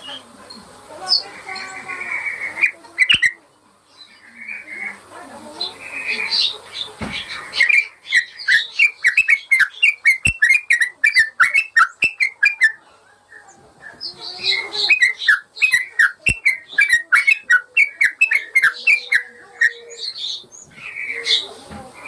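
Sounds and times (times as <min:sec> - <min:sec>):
bird chirping rapidly: 0:01.1 - 0:03.4, 0:06.3 - 0:12.8, 0:14.0 - 0:21.5.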